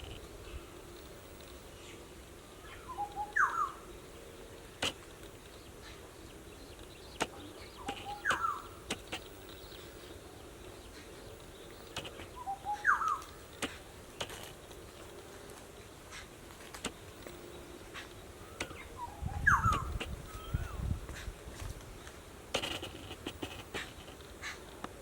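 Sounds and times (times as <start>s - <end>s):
bird call with falling whistle: 2.9s - 3.8s, 18.6s - 20.8s
sharp clicks: 4.8s - 5.6s, 6.8s - 9.8s, 11.4s - 12.2s, 22.5s - 24.8s.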